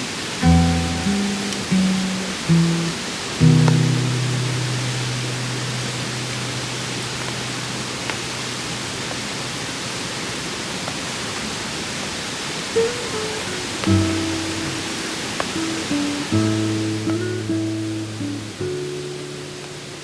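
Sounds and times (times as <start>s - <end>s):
acoustic guitar chord ringing: 0.4s - 8.9s, 12.8s - 20.0s.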